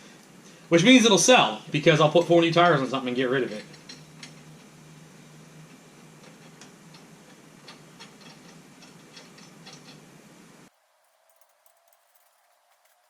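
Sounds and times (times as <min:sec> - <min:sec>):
steady background hiss: 0:00.0 - 0:13.0
hand tools clicking: 0:06.2 - 0:10.1.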